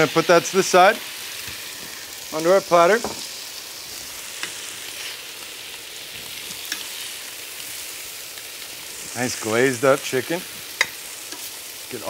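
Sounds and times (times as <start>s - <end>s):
meat sizzling in a pan: 0.0s - 12.0s
tongs clicking: 6.6s - 6.9s.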